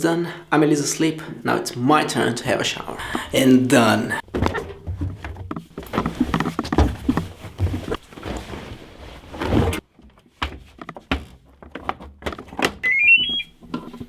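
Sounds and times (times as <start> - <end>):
knocks and clicks: 4.2 - 8.0
electronic beeps rising in pitch: 12.8 - 13.5.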